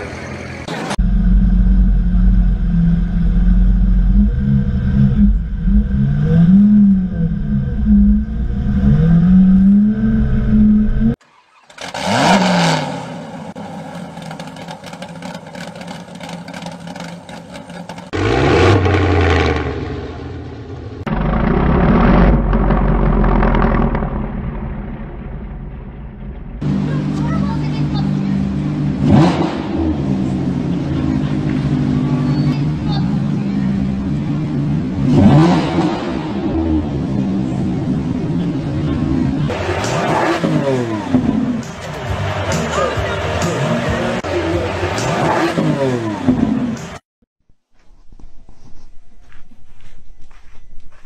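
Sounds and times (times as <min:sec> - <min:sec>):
car engine blipped: 0:00.0 - 0:47.0
car engine revving: 0:00.0 - 0:47.0.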